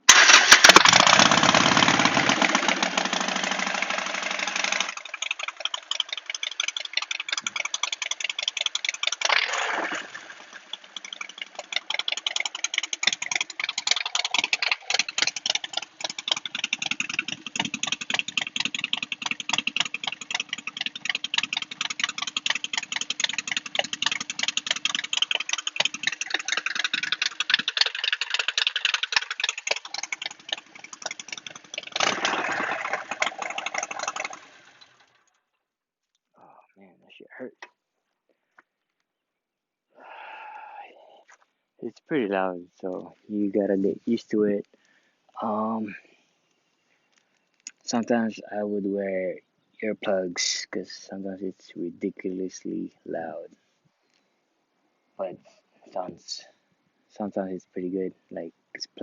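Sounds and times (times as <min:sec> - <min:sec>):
motorcycle exhaust pulses: 0:00.9 - 0:35.3.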